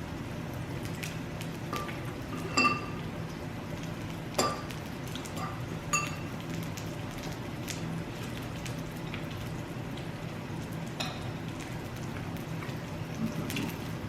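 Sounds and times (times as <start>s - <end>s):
meat sizzling on a grill: 0.0s - 14.0s
utensils clinking against dishes: 1.8s - 2.9s.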